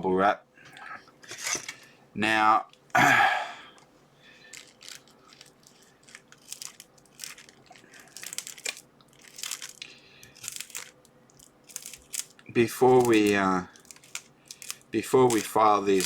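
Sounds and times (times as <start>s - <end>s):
bubble wrap crinkling: 4.3s - 16.0s.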